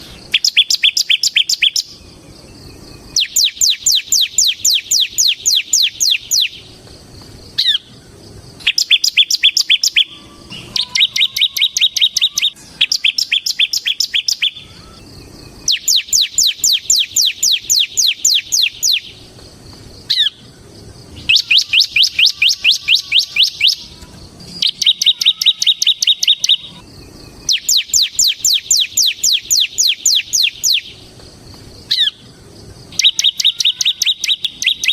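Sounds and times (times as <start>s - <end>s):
bird singing fast high notes: 8.6s - 19.2s, 21.2s - 31.0s, 32.9s - 34.9s.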